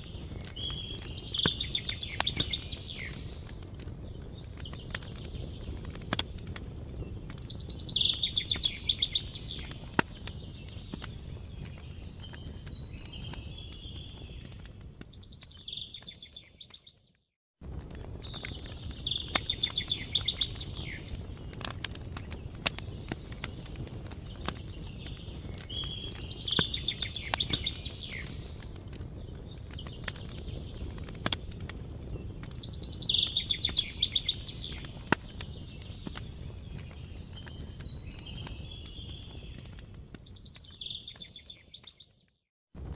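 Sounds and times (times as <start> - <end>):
campfire crackling and popping: 0.0 - 42.9
songbird trilling: 7.6 - 9.7.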